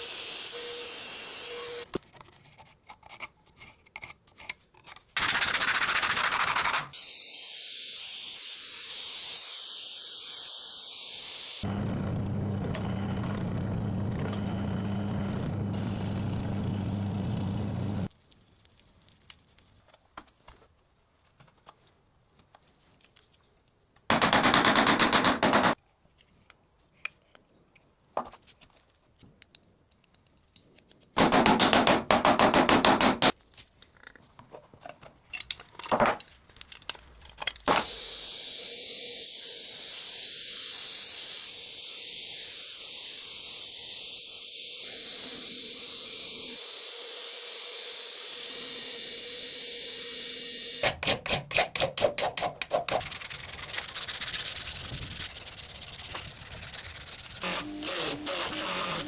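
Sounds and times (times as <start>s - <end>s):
loud grinding burst: 11.7s - 18.1s, 53.0s - 59.0s
steady motor running: 11.7s - 18.1s
rapid rasping strokes: 52.2s - 59.0s.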